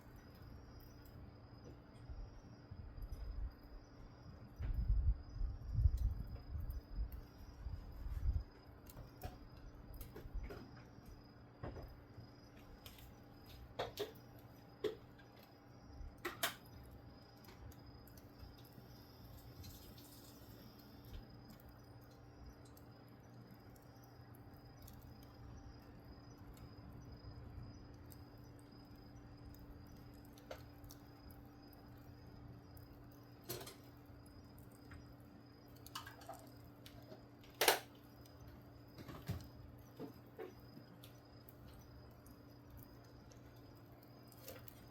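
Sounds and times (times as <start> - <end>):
faint steady hum: 0.0 - 44.9
wood fire crackling: 0.0 - 44.9
sharp pops and snaps: 35.7 - 38.4.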